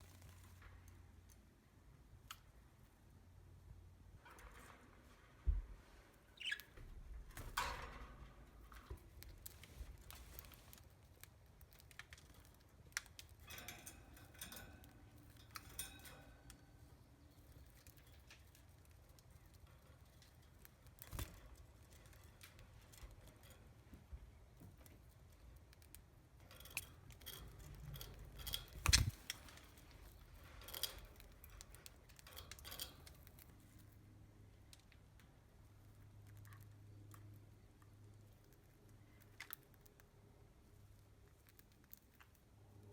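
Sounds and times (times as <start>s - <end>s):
beaks pecking and husking seeds: 6.2s - 6.8s, 7.5s - 42.9s
budgies chirping: 6.4s - 6.7s.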